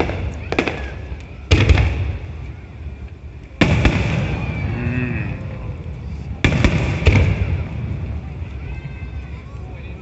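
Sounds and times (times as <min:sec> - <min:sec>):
firework booms: 0:00.0 - 0:02.5, 0:03.6 - 0:04.7, 0:06.3 - 0:08.4.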